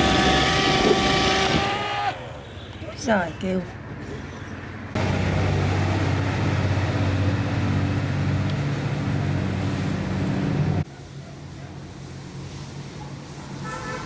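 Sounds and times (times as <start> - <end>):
robot vacuum fan humming: 0.0 - 2.2.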